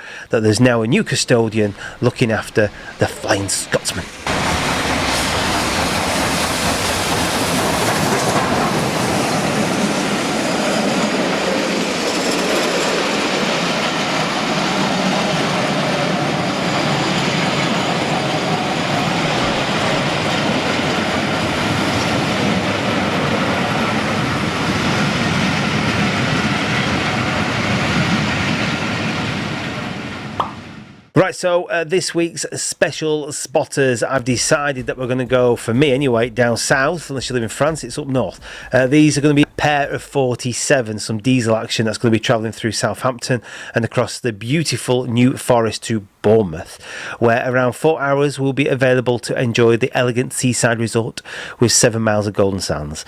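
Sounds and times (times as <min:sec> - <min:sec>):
train wheels rumbling on track: 0:01.0 - 0:31.2, 0:34.0 - 0:40.8.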